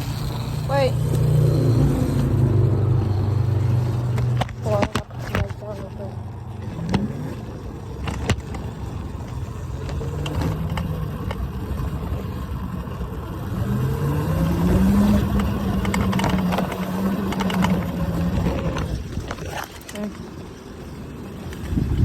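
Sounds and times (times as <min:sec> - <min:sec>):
electric motorbike motor whining: 0:00.0 - 0:22.0
steady rumble: 0:00.0 - 0:22.0.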